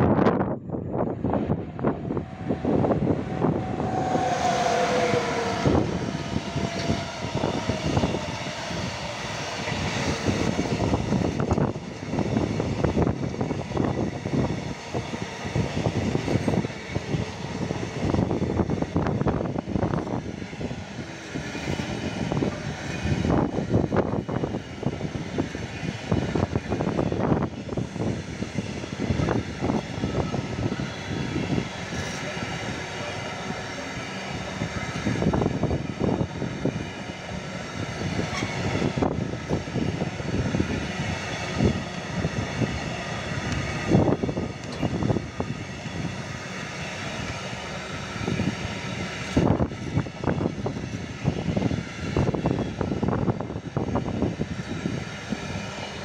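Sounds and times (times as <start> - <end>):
freight train rolling rumble: 0.0 - 56.0
wheel clatter over rail joints: 38.0 - 45.5.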